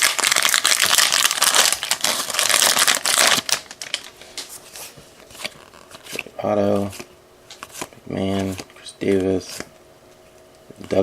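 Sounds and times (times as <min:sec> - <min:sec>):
card pack wrapper tearing: 0:00.0 - 0:04.2.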